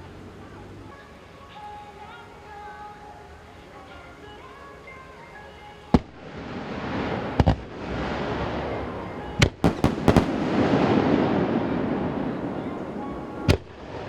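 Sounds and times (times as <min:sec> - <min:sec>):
fireworks crackle and echo: 0:05.7 - 0:14.0
fireworks bangs: 0:05.9 - 0:14.0.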